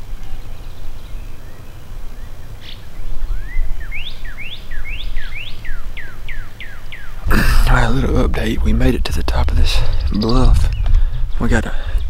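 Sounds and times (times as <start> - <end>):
songbird singing whistled notes: 0.0 - 7.2
steady low rumble: 7.2 - 12.0.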